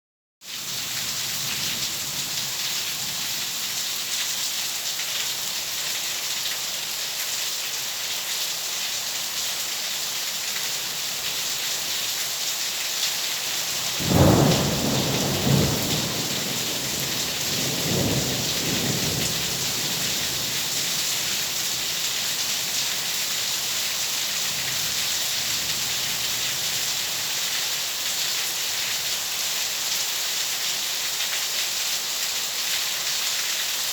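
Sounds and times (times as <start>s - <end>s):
heavy rain: 0.4s - 33.9s
thunder rumbling: 13.9s - 20.6s.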